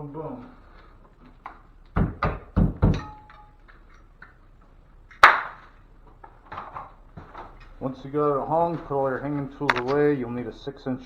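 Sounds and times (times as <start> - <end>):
hand tools knocking: 1.2 - 4.4
dull thumps: 1.3 - 3.3.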